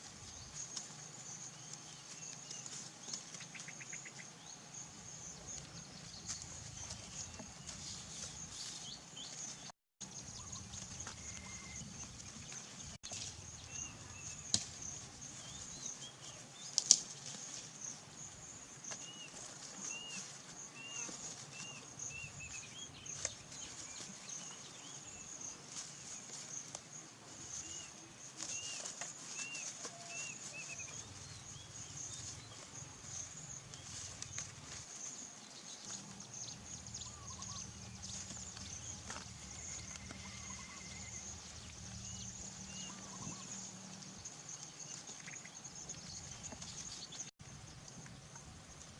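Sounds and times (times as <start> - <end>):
bird chirps: 10.1 - 12.6, 35.8 - 47.3.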